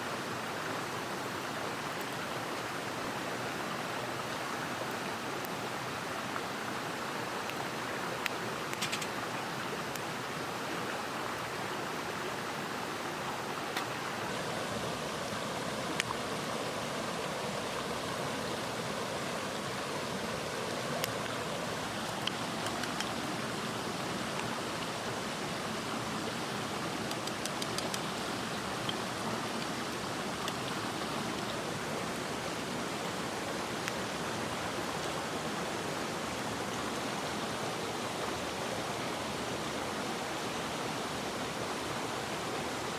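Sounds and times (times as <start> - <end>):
stream flowing: 0.0 - 42.9
faint sharp clicks: 8.2 - 9.2, 22.0 - 23.3, 27.0 - 28.1, 30.4 - 31.5.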